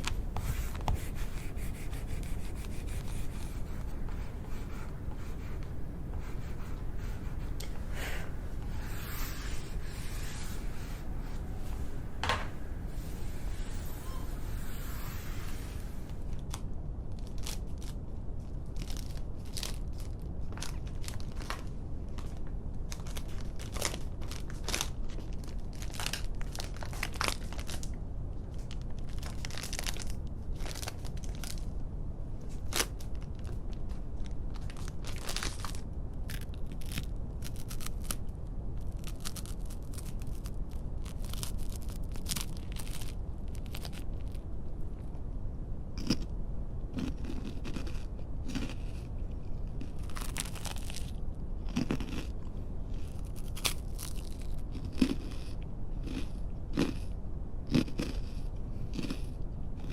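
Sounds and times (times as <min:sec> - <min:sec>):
dry crisp crunching and crackling: 0:34.5 - 0:38.2, 0:38.8 - 0:44.4, 0:49.7 - 0:51.1, 0:53.1 - 0:55.3.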